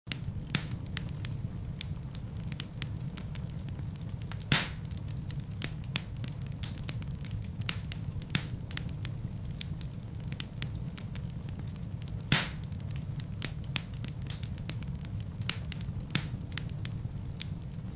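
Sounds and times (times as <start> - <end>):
low rumble of flames: 0.1 - 17.9
wood fire crackling: 0.1 - 17.9
loud pop from fire: 0.2 - 2.0, 4.2 - 8.9, 12.2 - 14.8, 15.4 - 16.7.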